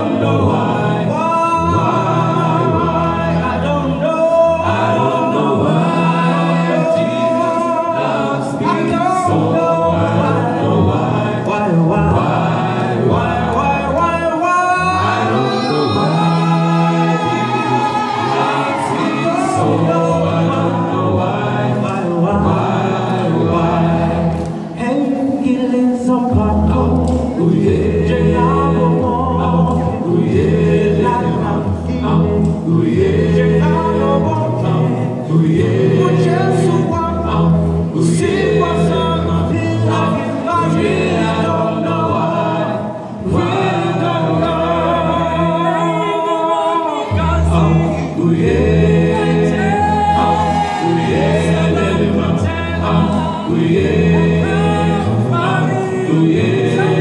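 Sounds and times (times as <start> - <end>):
vocal group singing a cappella: 0.0 - 57.0.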